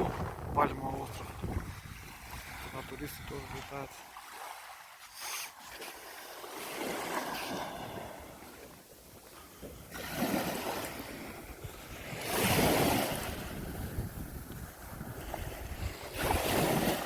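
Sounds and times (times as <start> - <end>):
wind buffeting microphone: 0.0 - 3.9, 10.5 - 17.0
sea waves on sandy beach: 0.0 - 17.0.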